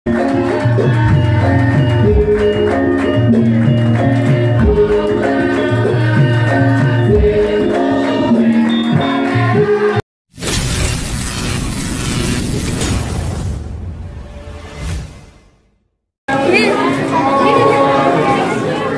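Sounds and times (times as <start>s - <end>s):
loud even noise: 10.4s - 15.1s.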